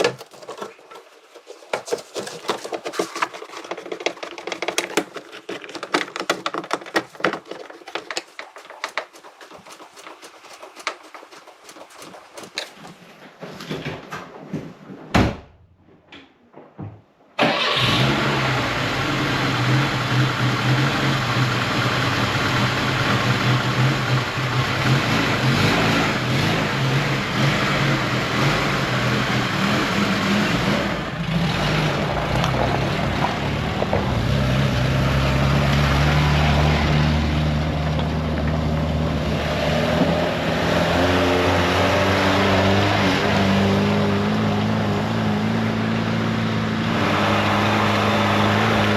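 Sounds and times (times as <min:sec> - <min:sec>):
car engine running: 0:17.8 - 0:48.9.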